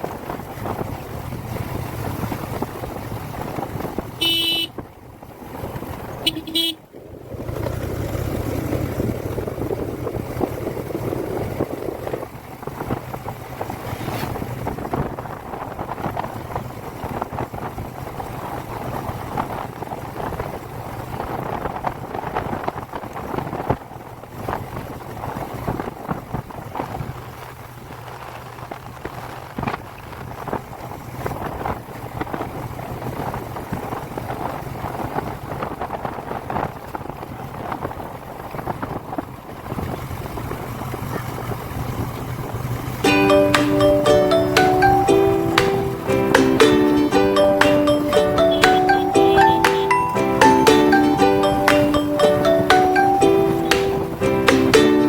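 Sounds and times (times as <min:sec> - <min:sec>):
motorcycle engine running: 0:00.0 - 0:22.0
wind buffeting microphone: 0:00.0 - 0:43.0.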